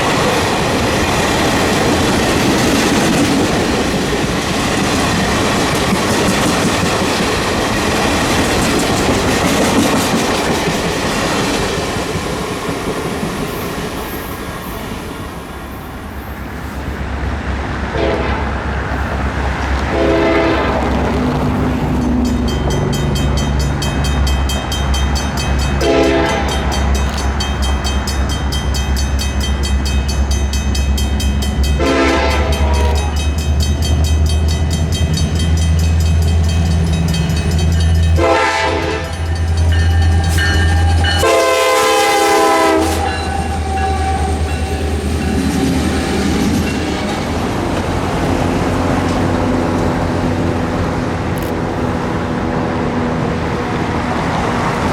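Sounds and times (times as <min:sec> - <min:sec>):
locomotive engine rumbling: 0:00.0 - 0:54.9
locomotive horn blasts: 0:17.9 - 0:18.7, 0:19.8 - 0:21.0, 0:25.8 - 0:27.0, 0:31.7 - 0:33.4, 0:38.1 - 0:45.0.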